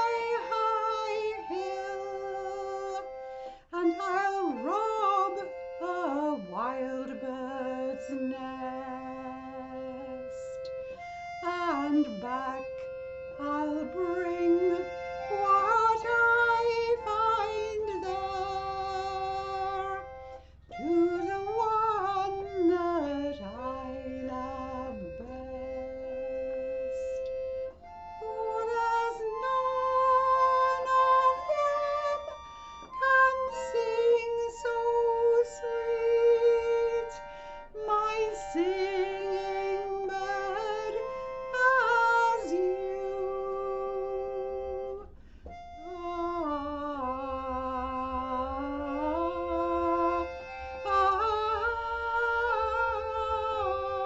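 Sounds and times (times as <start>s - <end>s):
instrumental accompaniment: 0.0s - 54.0s
wavering melody line: 3.8s - 45.0s.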